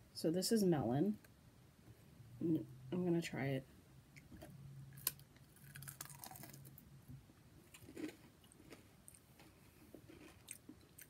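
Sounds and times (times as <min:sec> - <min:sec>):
faint crunching and chewing candy: 0:04.2 - 0:06.9, 0:07.6 - 0:11.0.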